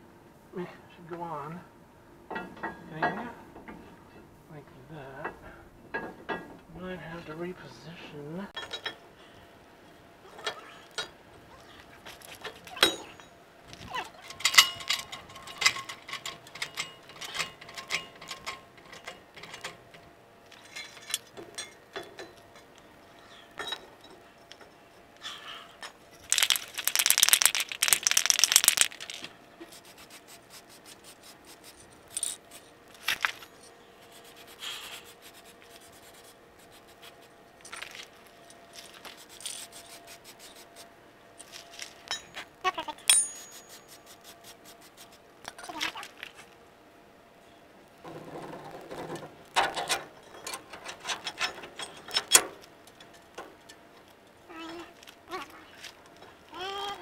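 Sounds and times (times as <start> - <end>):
hand tools clinking on steel: 12.2 - 13.4, 14.0 - 25.0, 25.8 - 29.3, 31.8 - 33.8, 41.4 - 42.4, 43.0 - 44.0, 49.7 - 53.8.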